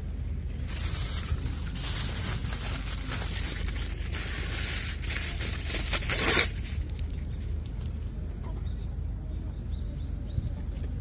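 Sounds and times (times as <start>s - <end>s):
low rumble: 0.0s - 11.0s
crinkling and rustling: 0.1s - 8.2s.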